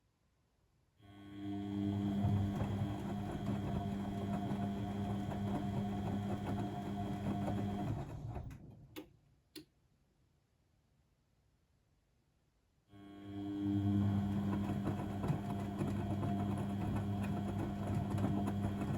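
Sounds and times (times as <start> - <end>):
washing machine motor humming: 1.6 - 9.0, 13.3 - 18.9.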